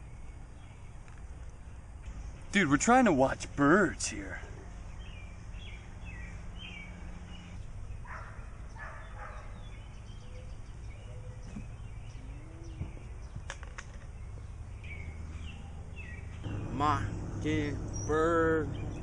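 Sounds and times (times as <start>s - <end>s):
birds chirping: 0.0s - 19.0s
low outdoor rumble: 10.6s - 19.0s.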